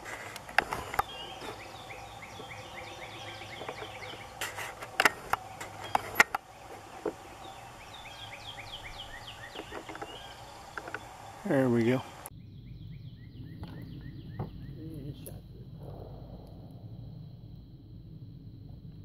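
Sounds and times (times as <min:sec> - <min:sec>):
songbird downward-sliding chirps: 0:00.0 - 0:17.5
sharp clicks: 0:09.1 - 0:12.3.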